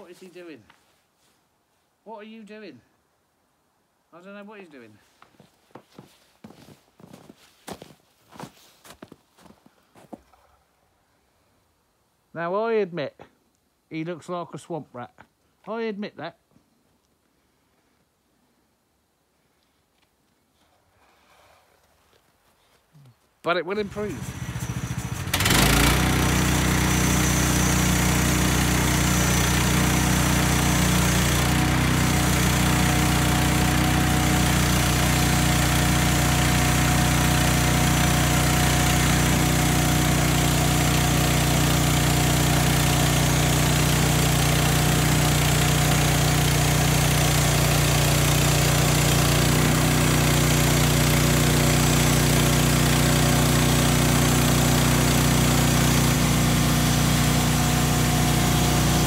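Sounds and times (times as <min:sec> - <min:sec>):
small petrol engine running: 0:23.8 - 0:59.0.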